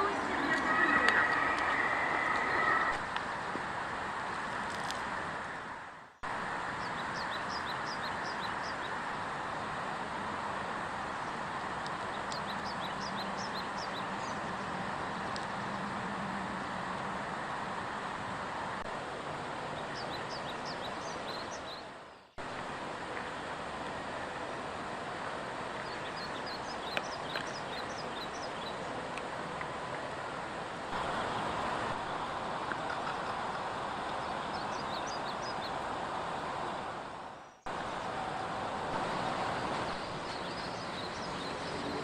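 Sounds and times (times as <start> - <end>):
songbirds chirping: 0.0 - 3.4, 6.0 - 16.0, 19.4 - 22.5, 25.6 - 30.4, 31.0 - 38.3, 39.0 - 42.0
steady rushing background: 0.0 - 6.8.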